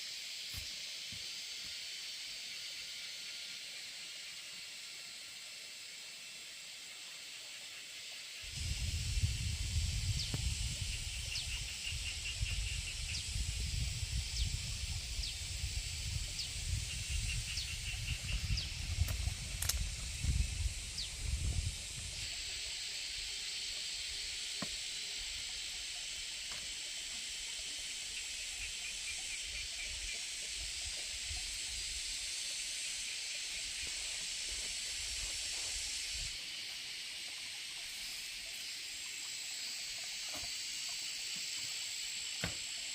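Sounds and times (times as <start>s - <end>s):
wind rumble on microphone: 8.5s - 22.3s
rain hissing: 8.5s - 26.4s.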